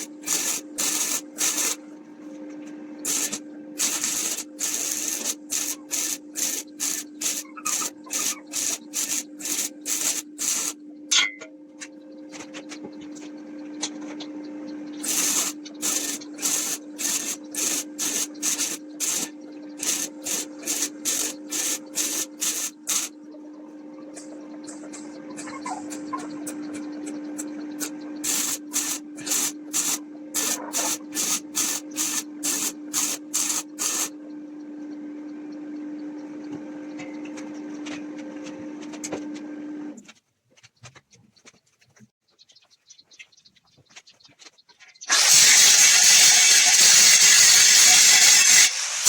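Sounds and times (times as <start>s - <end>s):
hand sanding wood: 0.0s - 1.8s, 3.1s - 10.8s, 15.0s - 23.1s, 28.3s - 34.1s
steady hum: 0.0s - 38.6s.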